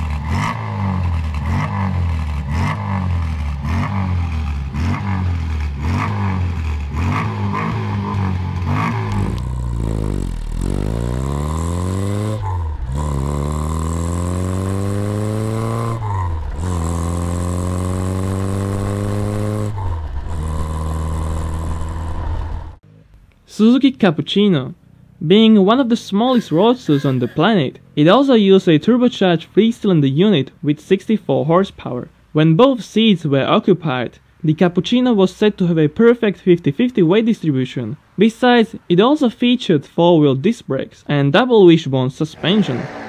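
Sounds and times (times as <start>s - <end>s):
car engine revving: 0.0s - 23.2s, 42.3s - 43.0s.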